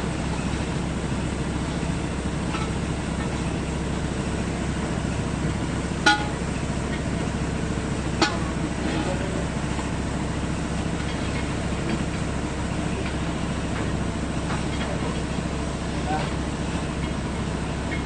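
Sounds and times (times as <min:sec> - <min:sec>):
excavator engine running: 0:00.0 - 0:18.0.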